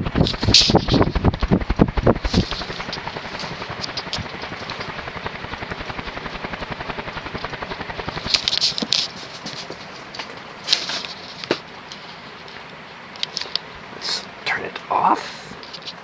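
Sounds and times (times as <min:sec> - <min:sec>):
ceiling fan whooshing: 0:00.0 - 0:16.0
scratchy noises: 0:00.1 - 0:10.1.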